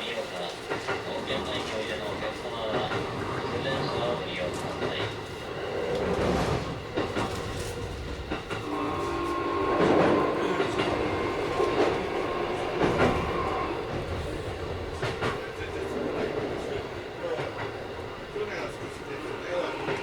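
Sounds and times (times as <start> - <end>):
electric train whine: 0.0 - 20.0
train wheels knocking over rail joints: 5.9 - 16.6.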